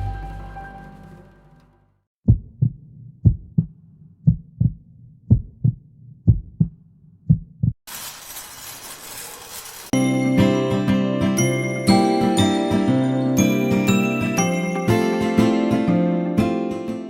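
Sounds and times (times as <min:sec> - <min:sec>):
heartbeat thumps: 0:02.2 - 0:07.8
steady hiss: 0:07.9 - 0:09.9.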